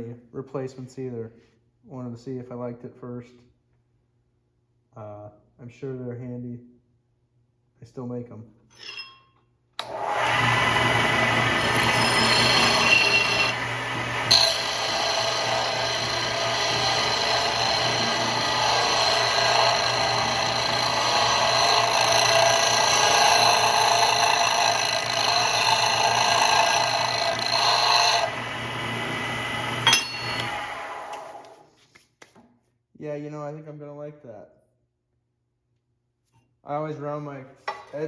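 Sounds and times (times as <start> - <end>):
sander motor humming: 9.8 - 31.6
sanding disc rasping grind: 10.8 - 28.4.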